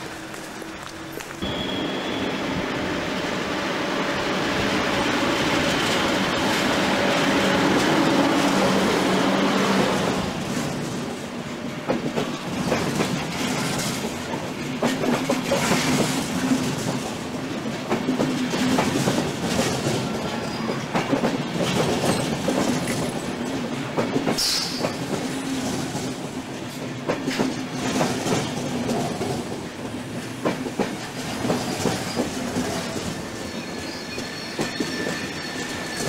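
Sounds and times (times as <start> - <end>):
electric locomotive hum: 0.0 - 13.4
train wheels clicking over rail joints: 5.3 - 36.0.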